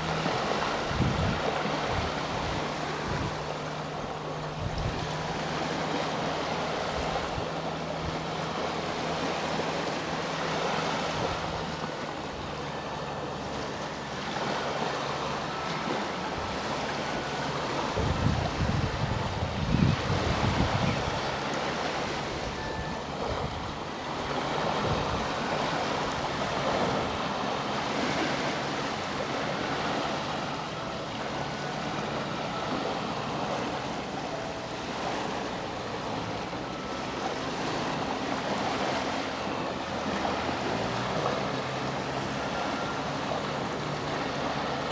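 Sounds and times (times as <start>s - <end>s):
sea waves washing onto shore: 0.0s - 44.9s.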